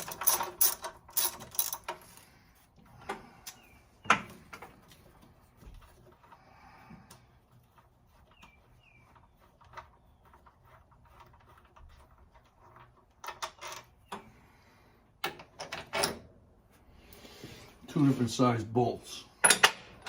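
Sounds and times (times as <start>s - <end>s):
metal tools and bolts clinking: 0.0s - 2.3s, 19.4s - 20.0s.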